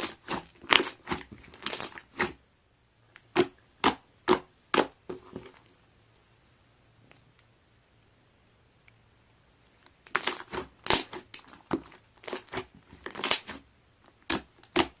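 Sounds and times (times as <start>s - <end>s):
slime squished by hand: 10.0s - 13.6s.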